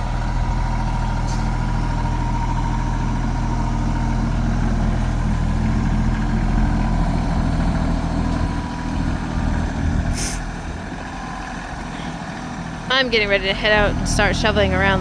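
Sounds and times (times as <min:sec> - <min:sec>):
tractor engine running: 0:00.0 - 0:15.0
brief hiss: 0:10.2 - 0:10.4.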